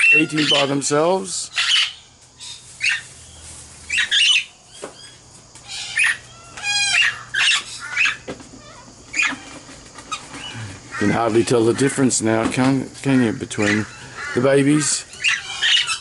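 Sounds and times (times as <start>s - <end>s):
parrots squawking: 0.0s - 3.2s, 3.9s - 12.3s, 13.0s - 16.0s
clear pitched parrot call: 1.5s - 3.1s, 3.9s - 8.2s, 15.2s - 16.0s.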